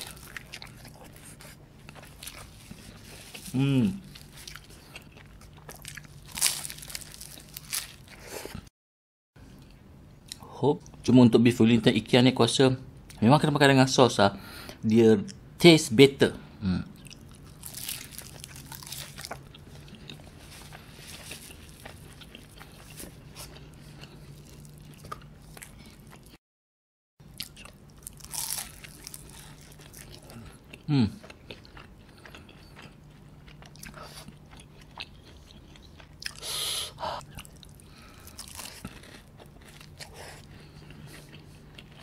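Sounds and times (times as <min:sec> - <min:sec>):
chewing and biting: 0:00.0 - 0:08.6, 0:17.0 - 0:26.4, 0:27.4 - 0:36.5, 0:37.2 - 0:42.0
crunching pastry: 0:00.0 - 0:08.7, 0:17.0 - 0:26.4, 0:27.3 - 0:36.4, 0:37.2 - 0:42.0.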